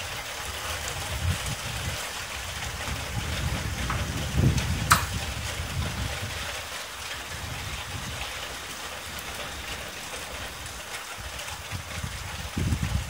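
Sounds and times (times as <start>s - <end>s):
heavy storm rain: 0.0s - 13.0s.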